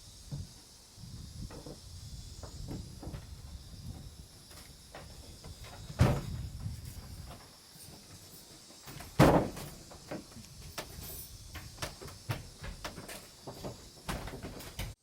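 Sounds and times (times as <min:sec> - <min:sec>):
heavy knocks of wood on wood: 0:04.9 - 0:06.7, 0:09.0 - 0:10.9.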